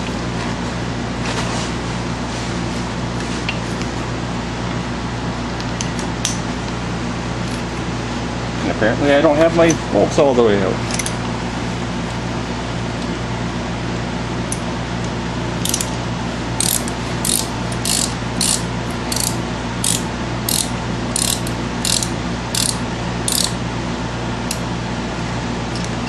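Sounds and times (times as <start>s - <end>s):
socket ratchet clicking: 15.6s - 15.9s, 16.6s - 23.6s.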